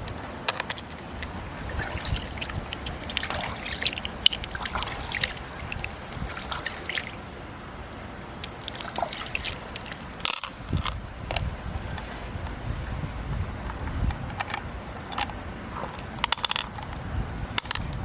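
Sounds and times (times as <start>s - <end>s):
small clicks: 0.0s - 1.3s, 8.4s - 12.6s, 14.0s - 17.0s
small splashes: 0.0s - 15.2s
water sloshing and trickling: 0.0s - 18.0s.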